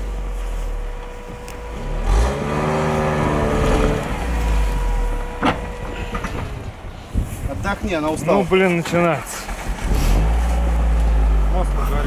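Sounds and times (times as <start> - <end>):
car engine revving hard: 1.4 - 6.2.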